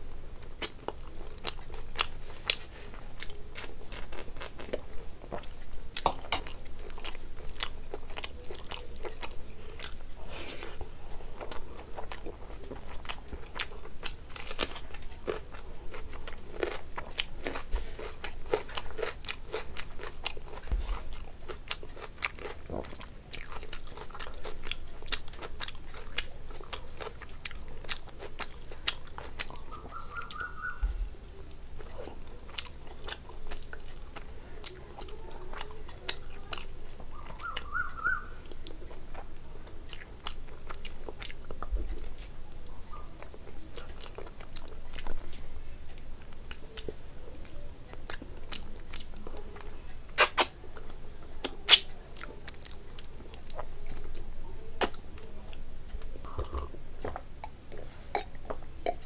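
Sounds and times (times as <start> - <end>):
person chewing food: 0.0 - 59.0
wet mouth clicks and smacks: 50.2 - 50.5.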